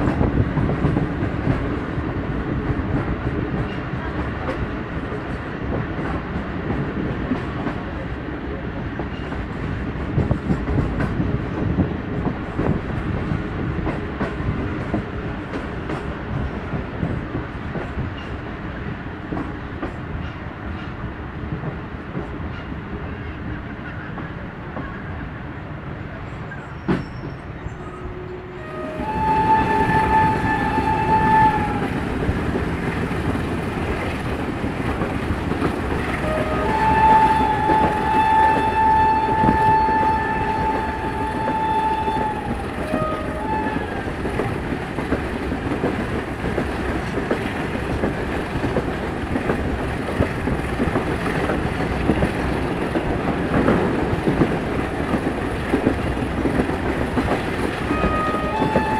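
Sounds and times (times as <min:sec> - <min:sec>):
train wheels rumbling on track: 0:00.0 - 0:58.9
locomotive horn blast: 0:27.8 - 0:32.0, 0:36.1 - 0:44.1, 0:57.8 - 0:58.9.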